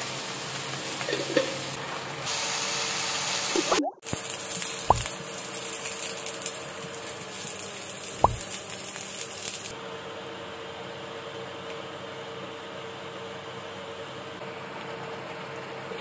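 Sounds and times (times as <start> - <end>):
onions sizzling in hot oil: 0.0 - 9.8.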